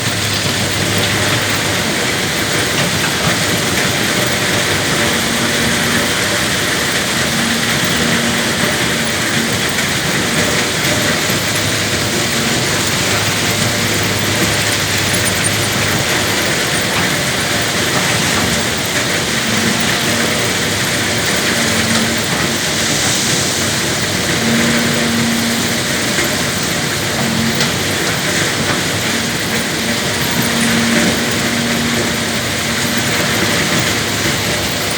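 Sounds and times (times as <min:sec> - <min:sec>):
excavator diesel engine running: 0:00.0 - 0:34.9
mechanical noise: 0:00.0 - 0:34.9.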